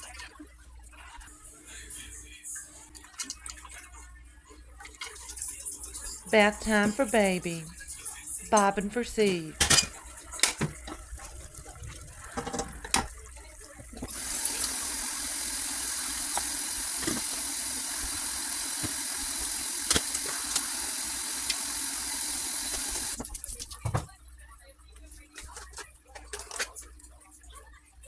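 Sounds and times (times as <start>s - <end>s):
water tap running: 9.3s - 23.6s.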